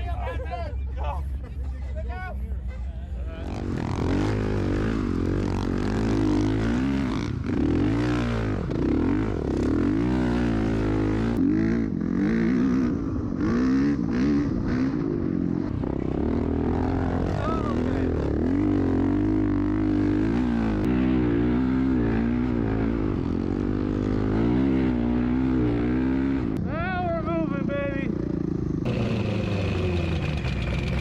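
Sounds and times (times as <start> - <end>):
off-road engines revving: 2.4 - 26.6, 27.2 - 31.0
engine running steadily: 28.1 - 31.0.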